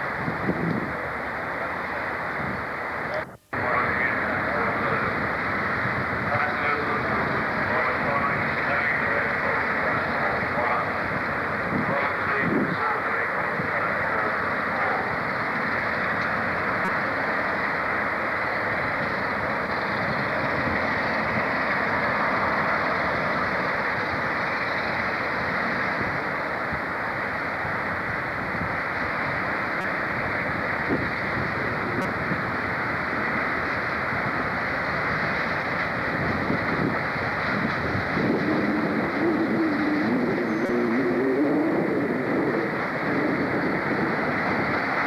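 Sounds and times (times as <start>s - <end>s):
train rumbling: 0.0s - 45.0s
wavering low tone: 38.3s - 42.7s.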